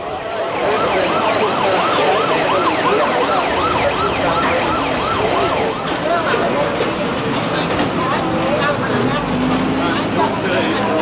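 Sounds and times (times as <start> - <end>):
emergency vehicle siren yelping: 0.0 - 7.2.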